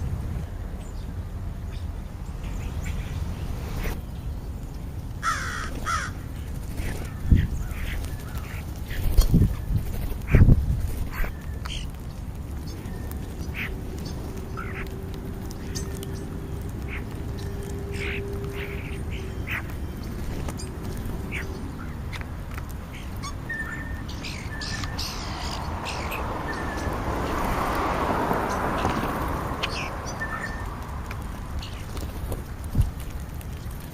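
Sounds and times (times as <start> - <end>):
birds calling harshly: 1.7 - 33.9
rushing noise: 24.0 - 32.8.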